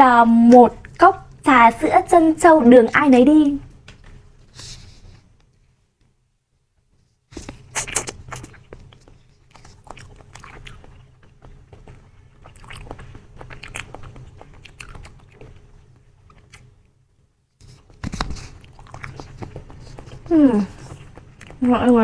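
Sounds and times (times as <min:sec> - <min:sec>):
biting into jelly: 0:07.4 - 0:16.7, 0:18.1 - 0:21.6
chewing jelly wet smacks: 0:07.5 - 0:16.8, 0:18.2 - 0:22.0.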